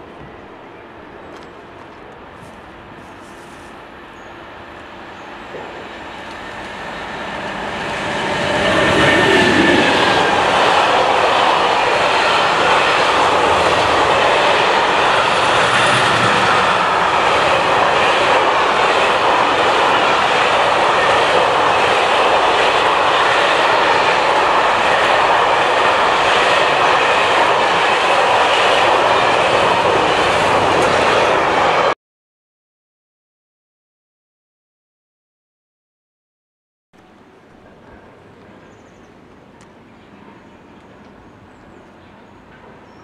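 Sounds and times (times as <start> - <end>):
train wheels rushing on rails: 0.0 - 32.0.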